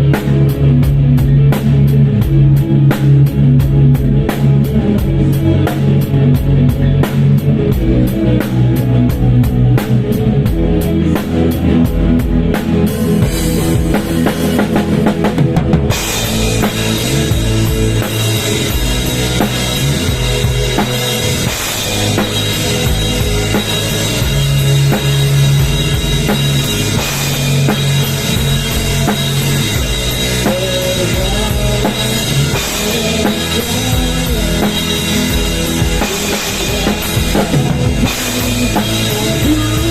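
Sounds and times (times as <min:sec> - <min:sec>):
heavy bass drum: 0:00.0 - 0:39.9
loud rock music: 0:00.0 - 0:39.9
cymbals: 0:15.9 - 0:39.9.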